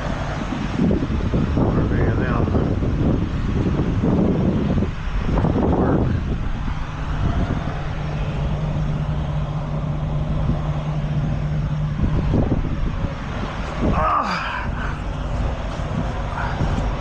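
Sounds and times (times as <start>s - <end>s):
truck engine humming: 0.0s - 17.0s.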